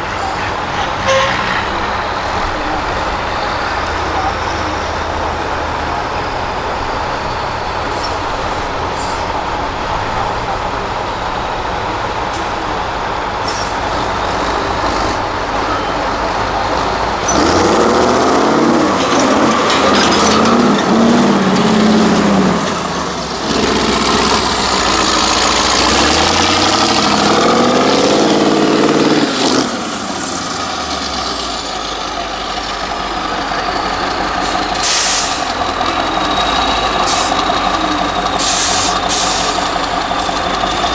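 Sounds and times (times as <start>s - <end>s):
truck diesel engine revving: 0.0s - 40.9s
air hiss: 38.4s - 39.7s.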